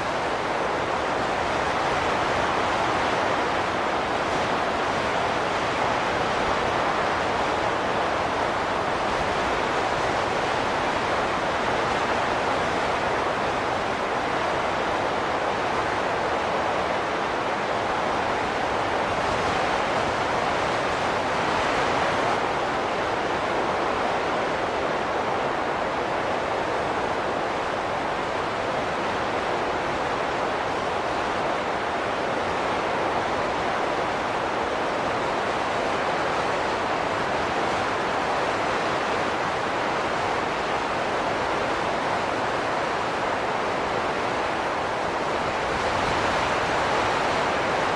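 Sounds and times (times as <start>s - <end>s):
rushing wind: 0.0s - 47.9s.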